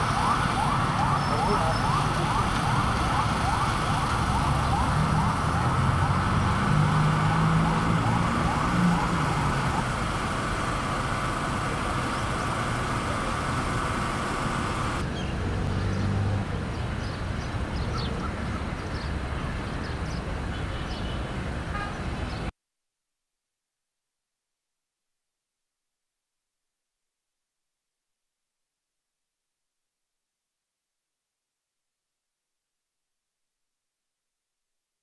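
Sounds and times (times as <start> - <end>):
din of passing traffic: 0.0 - 22.5
vehicle engines running: 0.0 - 22.5.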